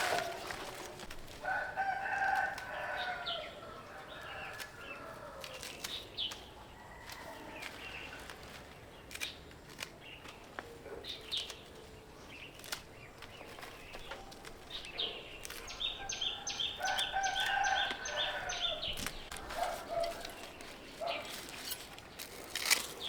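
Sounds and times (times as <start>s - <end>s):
bird chirping: 10.0s - 21.8s.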